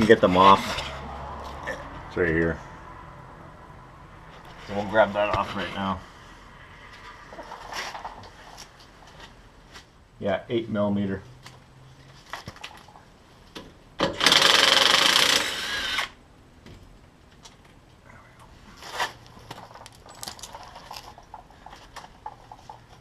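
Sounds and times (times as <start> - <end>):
power drill spinning out bolt: 14.1 - 16.2.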